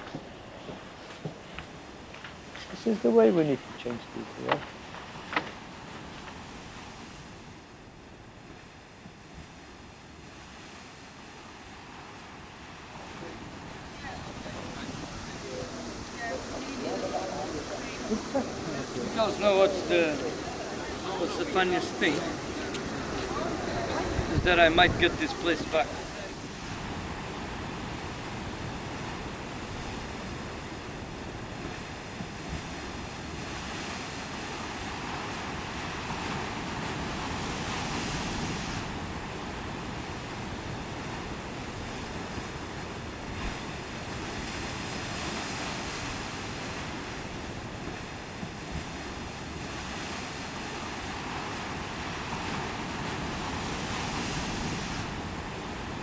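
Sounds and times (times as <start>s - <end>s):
ocean surf washing: 0.0s - 56.0s
wind on microphone: 12.4s - 56.0s.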